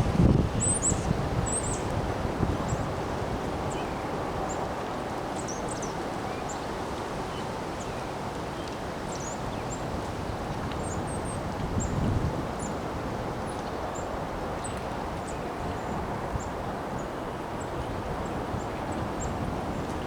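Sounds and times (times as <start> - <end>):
wind blowing: 0.0 - 5.3
wind buffeting microphone: 0.0 - 6.1, 9.1 - 20.0.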